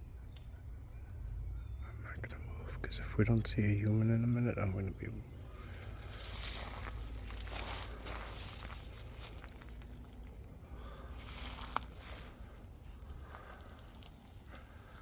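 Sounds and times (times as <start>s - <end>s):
rustling in dry leaves: 5.5s - 15.0s.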